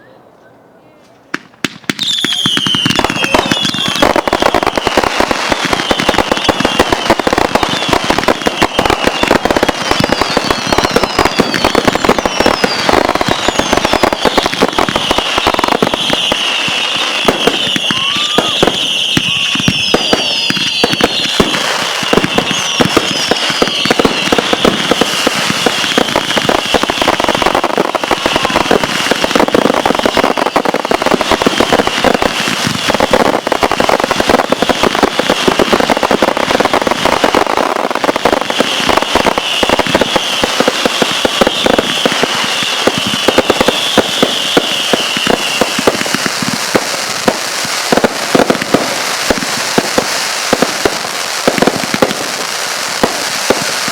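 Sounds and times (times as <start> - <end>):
fireworks cracks and bangs: 1.3 - 53.9
falling firework whistles: 1.7 - 53.9
high shrill firework whine: 2.0 - 52.0.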